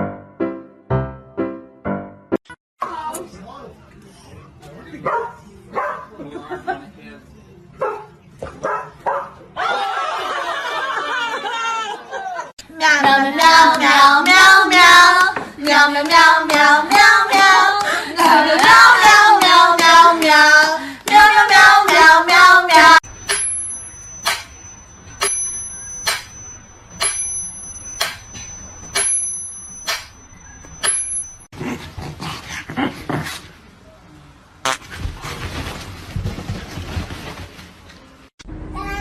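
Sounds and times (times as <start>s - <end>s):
faint steady high tone: 23.0s - 31.5s.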